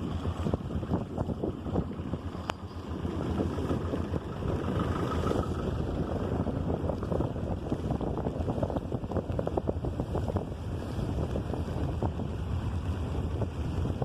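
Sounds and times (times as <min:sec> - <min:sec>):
scooter engine: 0:00.0 - 0:08.6
road noise: 0:00.0 - 0:14.0
wind buffeting microphone: 0:00.0 - 0:14.0.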